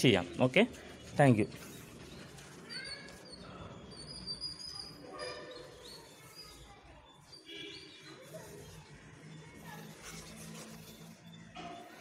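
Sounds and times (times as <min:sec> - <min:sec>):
bird calls and chirps: 0:00.2 - 0:12.0.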